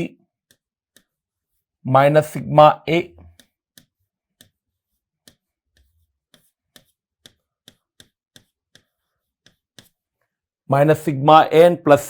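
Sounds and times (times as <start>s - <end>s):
stylus tapping on writing board: 3.2s - 10.0s.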